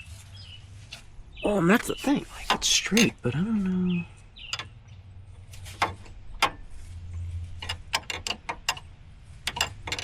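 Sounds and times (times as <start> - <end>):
sharp metal clicks of hand tool: 7.6 - 10.0.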